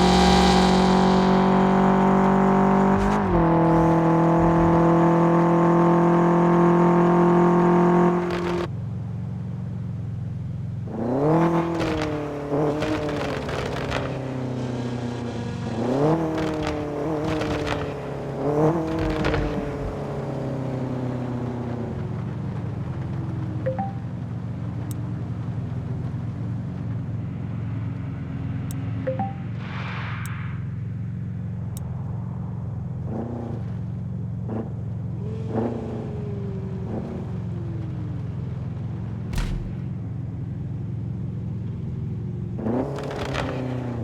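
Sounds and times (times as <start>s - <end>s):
engine revving: 0.0s - 8.7s, 10.9s - 21.3s, 34.4s - 38.0s, 39.3s - 40.1s, 42.5s - 44.0s.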